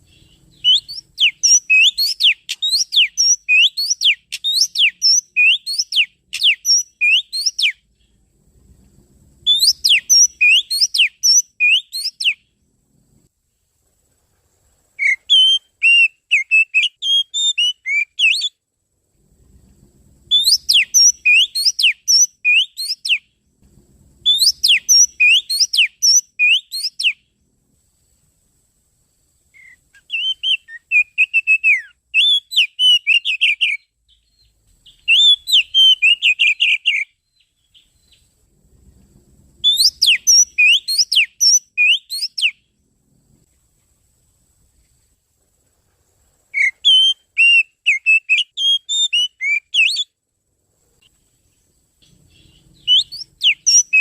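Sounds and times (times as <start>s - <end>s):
bird whistling and chirping song: 0.0s - 8.2s, 9.4s - 12.4s, 15.0s - 18.6s, 20.3s - 23.3s, 24.2s - 27.2s, 29.5s - 38.3s, 39.6s - 42.6s, 46.5s - 50.2s, 52.0s - 54.0s.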